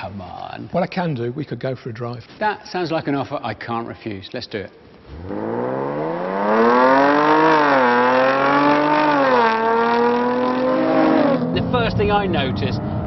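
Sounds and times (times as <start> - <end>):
car engine accelerating hard: 5.1 - 13.0.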